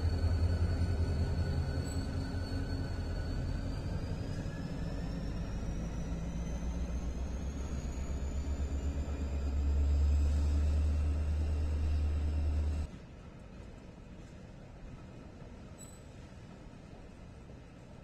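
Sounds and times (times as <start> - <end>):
faint high whine: 0.0 - 12.9
freight train rumbling past: 0.0 - 12.9.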